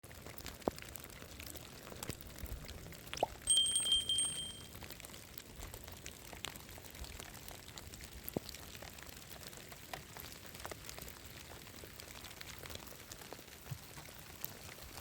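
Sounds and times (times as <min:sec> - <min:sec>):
light rain dripping and pattering: 0:00.0 - 0:15.0
steady high ping: 0:03.5 - 0:04.7.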